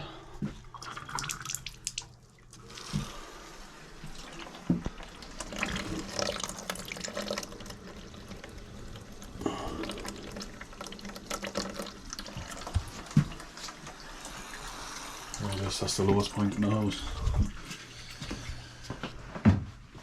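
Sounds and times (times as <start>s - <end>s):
water running from a tap: 0.7s - 17.0s.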